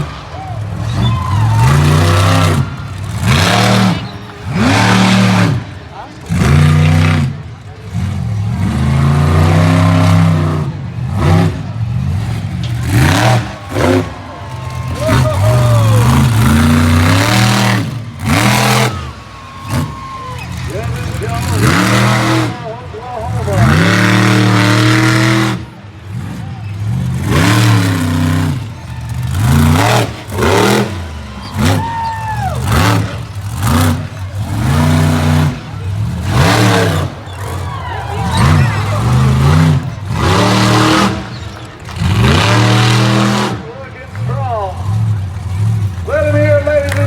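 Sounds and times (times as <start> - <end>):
monster truck engine revving: 0.0 - 47.0.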